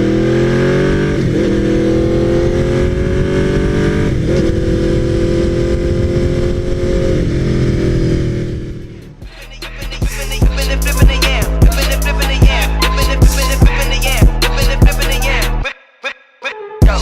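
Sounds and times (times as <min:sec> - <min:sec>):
motorcycle engine running: 0:04.5 - 0:15.6.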